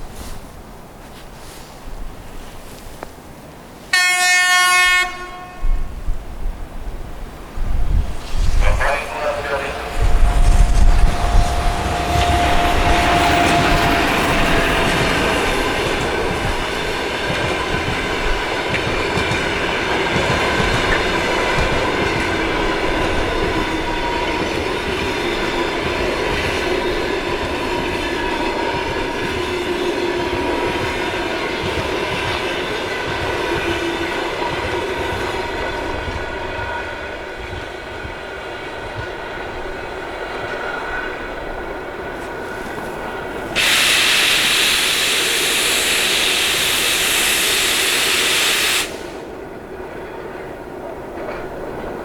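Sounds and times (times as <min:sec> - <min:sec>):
wheels squealing on rails: 0:07.9 - 0:18.4, 0:42.2 - 0:49.4
train wheels clattering over rail joints: 0:10.1 - 0:36.1.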